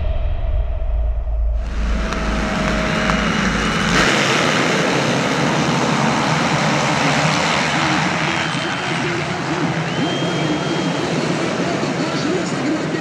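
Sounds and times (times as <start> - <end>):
dirt bike engines racing: 1.6 - 13.0.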